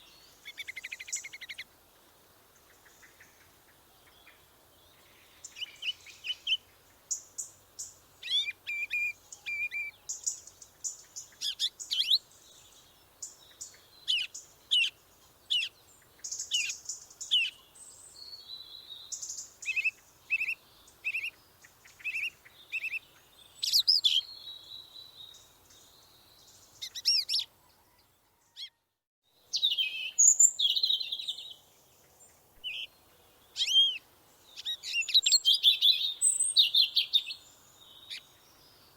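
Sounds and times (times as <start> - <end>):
birds chirping and calling: 5.4 - 12.3, 19.1 - 25.9, 26.5 - 28.0, 29.5 - 38.5.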